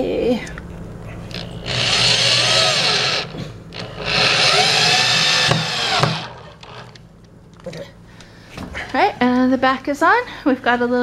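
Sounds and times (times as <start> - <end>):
power drill driving screws into wood: 1.6 - 7.0.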